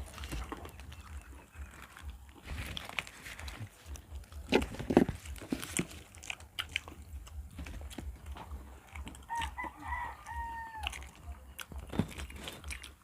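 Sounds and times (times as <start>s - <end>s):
eating clicks and crunches: 0.0s - 13.0s
rooster crowing: 9.2s - 11.2s.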